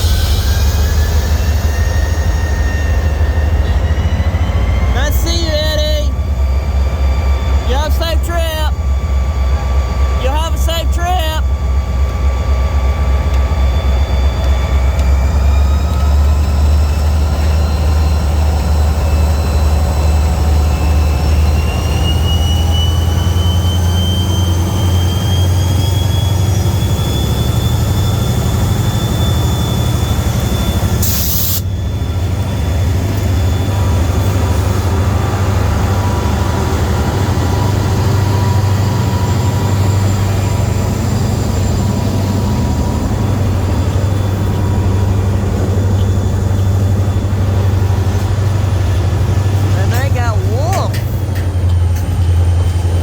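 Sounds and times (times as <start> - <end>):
diesel locomotive engine rumble: 0.0 - 53.0
whining tones rising in pitch: 0.0 - 53.0.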